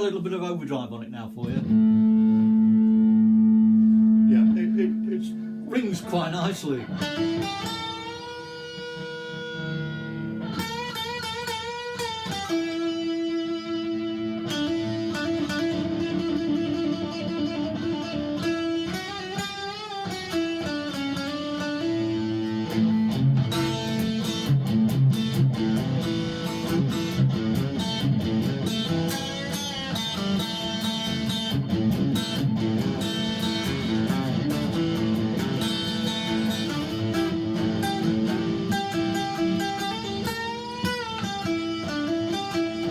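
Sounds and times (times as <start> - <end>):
overdriven electric guitar: 1.4 - 42.9.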